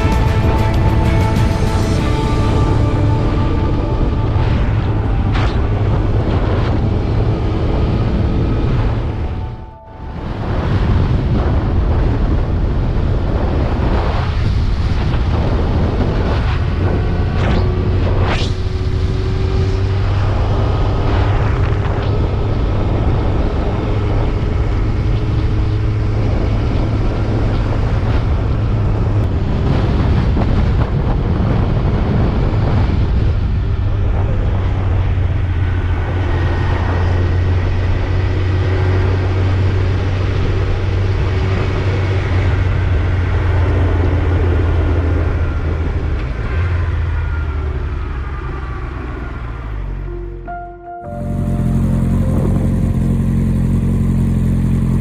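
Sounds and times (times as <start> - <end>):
motorcycle engine running: 0.0 - 13.5, 51.1 - 55.0
wind rushing over microphone: 0.0 - 48.2.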